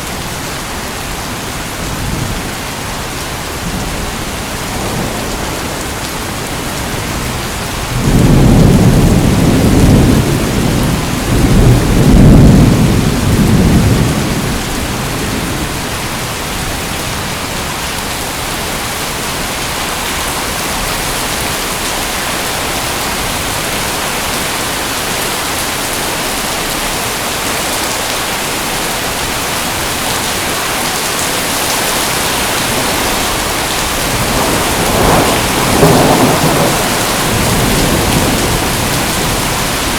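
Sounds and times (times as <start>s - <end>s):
heavy rain: 0.0s - 39.9s
thunder rumbling: 4.7s - 16.9s, 30.8s - 39.9s.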